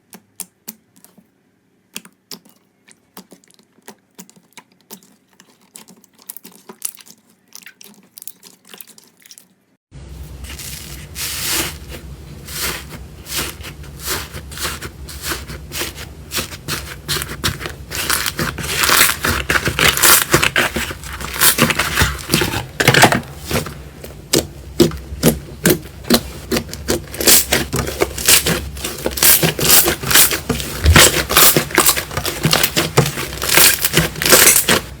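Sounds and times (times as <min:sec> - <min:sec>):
slime crackling and popping: 0:17.1 - 0:22.6, 0:24.3 - 0:34.9.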